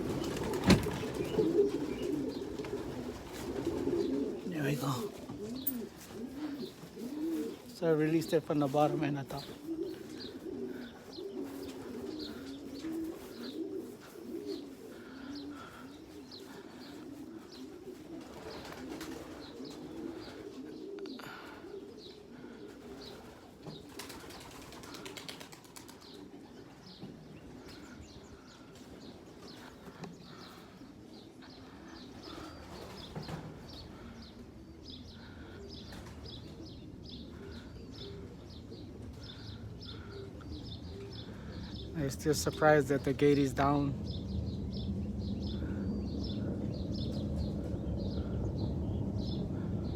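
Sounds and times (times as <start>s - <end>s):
wings flapping: 0.0s - 21.4s, 22.8s - 27.9s, 32.1s - 34.2s, 35.8s - 36.6s
pigeons cooing: 0.0s - 49.9s.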